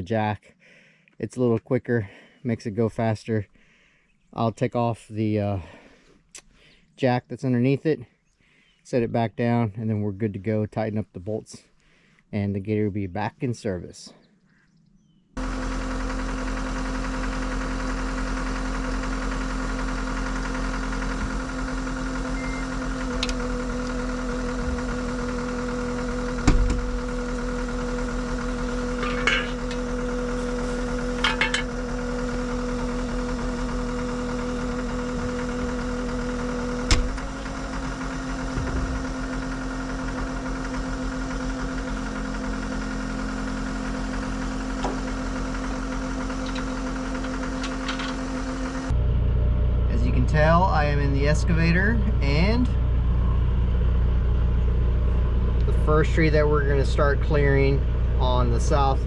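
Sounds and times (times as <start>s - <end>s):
diesel engine running: 15.4s - 59.0s
clunk: 26.4s - 27.0s, 28.9s - 29.9s, 31.1s - 31.8s, 46.4s - 48.2s
sharp metal knocks and clatters: 29.0s - 29.8s, 31.2s - 31.8s.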